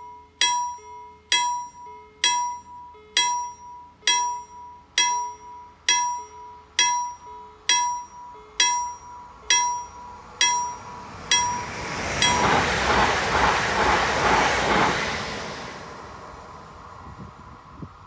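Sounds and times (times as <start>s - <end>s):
level crossing warning bell: 0.0s - 13.0s
train wheels rushing on rail: 8.6s - 18.0s.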